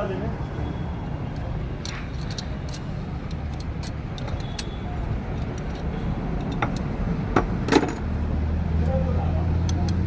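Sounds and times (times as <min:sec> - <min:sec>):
hand tools tapping on metal: 0:01.8 - 0:08.0.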